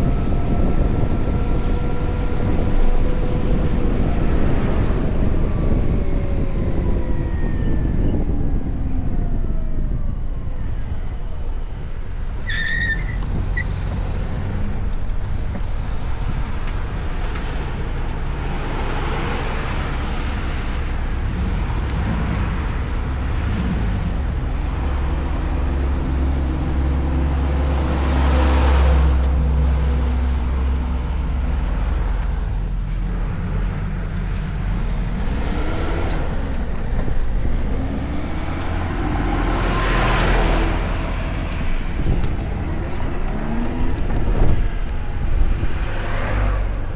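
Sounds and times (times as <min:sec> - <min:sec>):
car engines nearby: 0:00.0 - 0:46.9
wind and road noise: 0:00.0 - 0:46.9
vehicle passing: 0:16.5 - 0:46.9.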